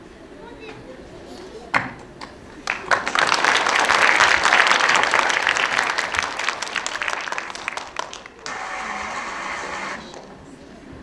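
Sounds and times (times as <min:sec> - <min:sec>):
audience clapping: 0:02.2 - 0:10.5.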